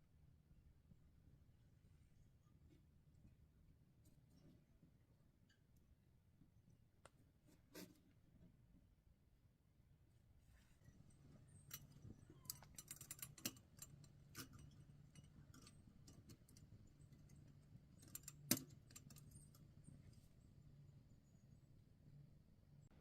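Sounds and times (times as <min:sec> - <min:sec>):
light metallic clinks: 0:10.8 - 0:19.9.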